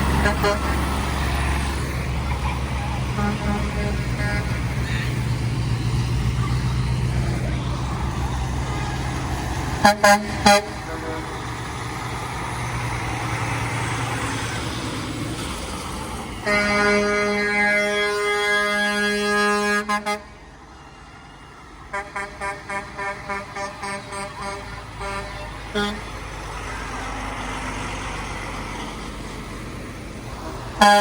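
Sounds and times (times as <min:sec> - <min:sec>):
long air horn blast: 0:00.0 - 0:01.2, 0:03.0 - 0:05.2, 0:09.7 - 0:11.7, 0:16.4 - 0:20.4, 0:21.9 - 0:26.2, 0:30.8 - 0:31.0
fire truck engine rumbling: 0:00.0 - 0:31.0.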